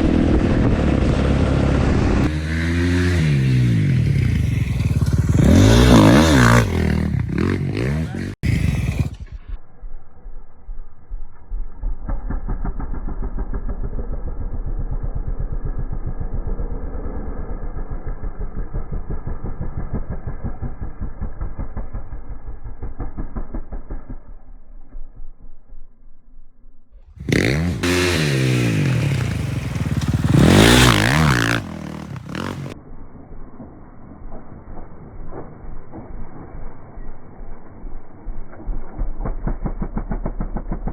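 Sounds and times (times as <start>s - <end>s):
dirt bike engine revving: 0.0s - 9.4s, 27.2s - 32.8s
dirt bike engine idling: 3.2s - 26.5s, 27.2s - 33.6s, 34.2s - 40.9s.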